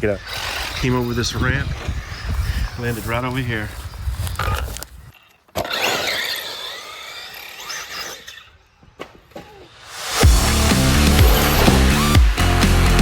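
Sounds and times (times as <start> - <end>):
toy car motors whining: 0.0 - 12.1
electronic dance music: 9.9 - 13.0.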